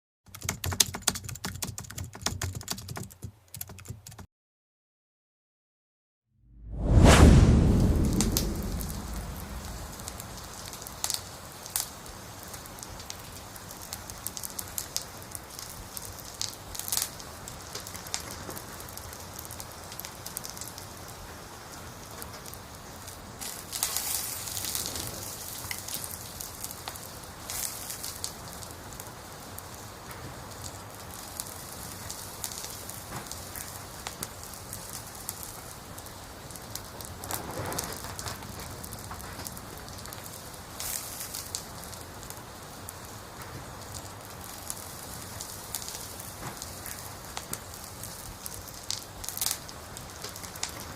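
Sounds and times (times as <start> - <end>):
campfire crackling and popping: 8.2 - 20.9, 29.6 - 50.9.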